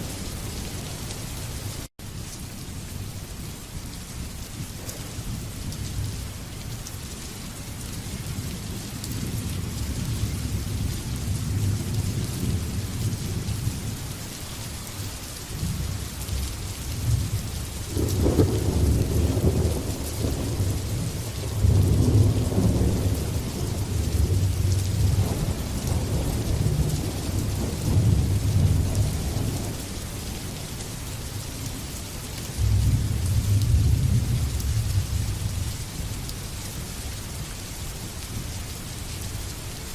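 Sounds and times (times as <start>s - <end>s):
steady rainfall hissing: 0.0s - 39.9s
thunder rumbling: 17.0s - 30.0s, 32.6s - 35.7s.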